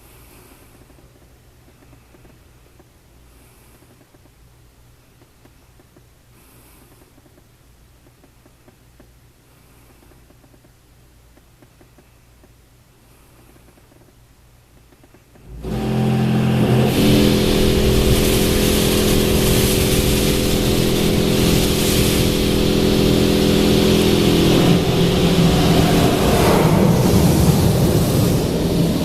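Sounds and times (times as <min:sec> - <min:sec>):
car wash machinery humming: 0:15.4 - 0:29.0
strong hiss: 0:15.4 - 0:29.0.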